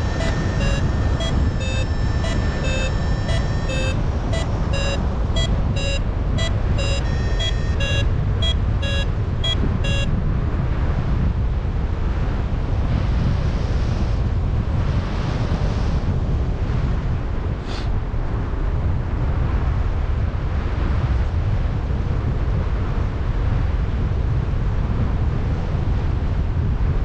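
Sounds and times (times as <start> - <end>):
variometer beeping: 0.0 - 10.1
wind rushing across microphone: 7.6 - 27.0.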